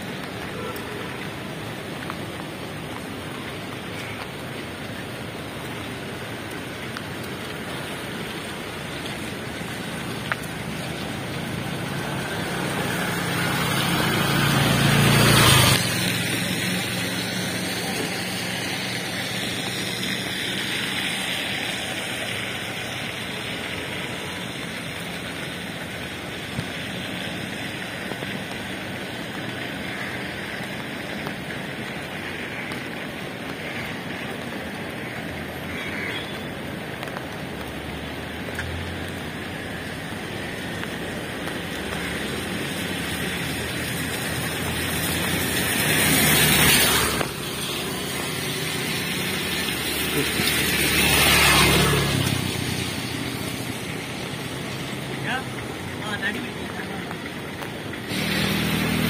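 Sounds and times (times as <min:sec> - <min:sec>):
flooding river rushing: 0:00.0 - 0:59.0
rain: 0:00.0 - 0:59.0
vehicle passing: 0:07.9 - 0:23.1, 0:38.5 - 0:59.0.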